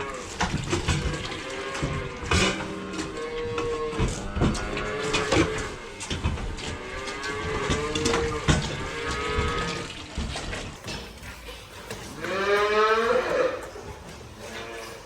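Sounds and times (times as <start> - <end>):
cows mooing: 0.0 - 10.0, 11.8 - 15.0.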